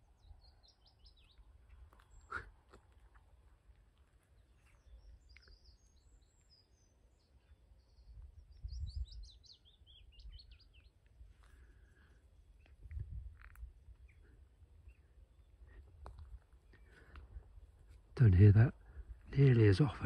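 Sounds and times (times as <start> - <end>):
warbler singing: 0.0 - 2.4, 4.3 - 15.8.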